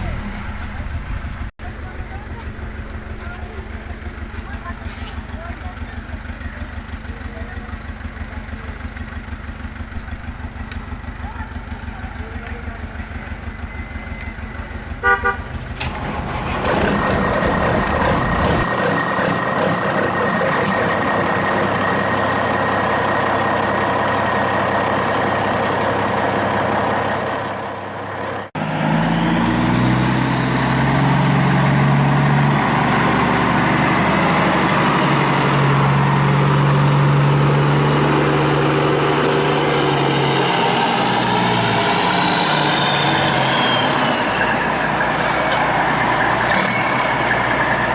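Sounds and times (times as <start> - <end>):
engine with high whine: 0.0 - 47.9
throbbing engine: 0.0 - 47.9
engine with rising whine: 6.5 - 47.9
horn toot: 15.0 - 16.0.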